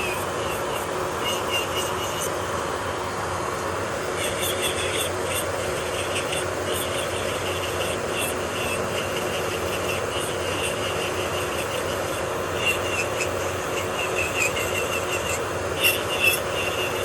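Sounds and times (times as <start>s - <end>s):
nail drill motor hum: 3.8s - 17.0s
drill bit scraping nail: 4.2s - 17.0s.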